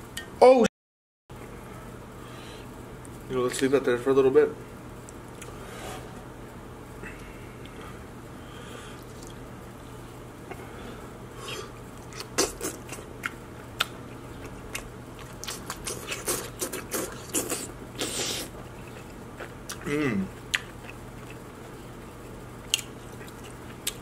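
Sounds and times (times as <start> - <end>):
lip smacking: 12.0 - 19.8, 22.7 - 24.0
wet chewing: 12.0 - 19.8, 20.5 - 24.0.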